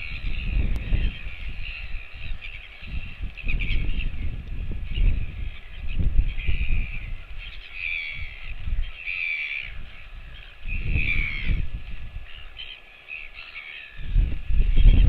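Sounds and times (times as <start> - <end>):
crow cawing: 9.0 - 11.6, 12.3 - 14.1.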